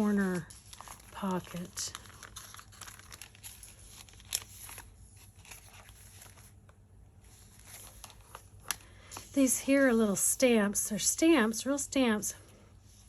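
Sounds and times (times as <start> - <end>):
paper pages rustling: 0.0 - 9.6.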